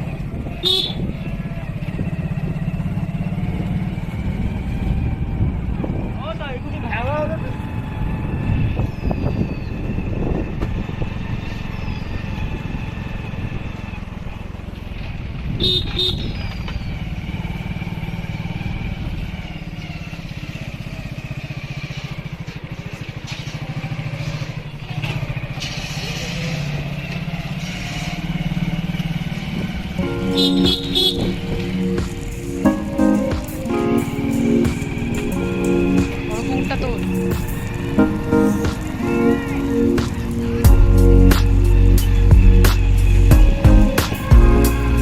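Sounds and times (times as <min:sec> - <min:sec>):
wind rumble: 0:00.0 - 0:19.8, 0:29.4 - 0:45.0
motorcycle engine running: 0:00.0 - 0:45.0
vehicle horn honking: 0:00.5 - 0:01.2, 0:15.5 - 0:16.5, 0:30.0 - 0:32.6.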